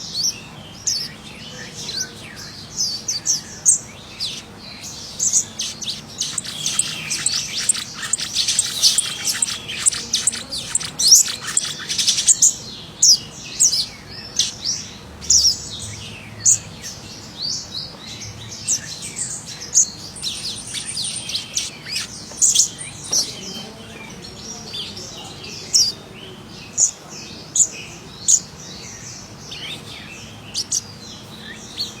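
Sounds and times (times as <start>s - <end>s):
bird chirping high and sharp: 2.9s - 15.6s, 18.7s - 23.3s.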